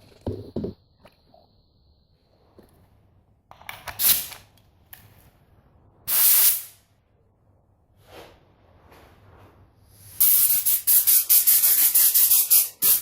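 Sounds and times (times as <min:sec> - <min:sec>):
spray paint hissing: 0:06.1 - 0:06.8, 0:10.0 - 0:13.0.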